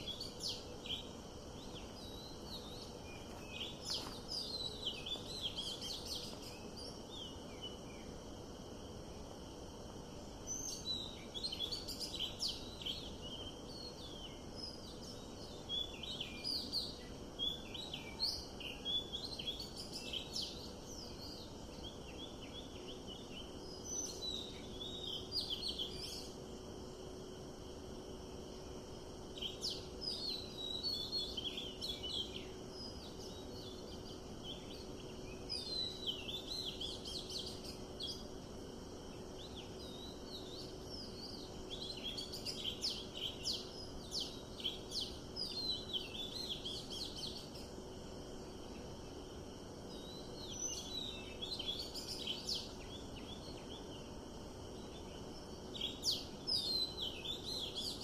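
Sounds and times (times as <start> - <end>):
birds chirping and trilling: 0.0 - 8.2, 29.3 - 58.0
steady background hiss: 0.0 - 58.0.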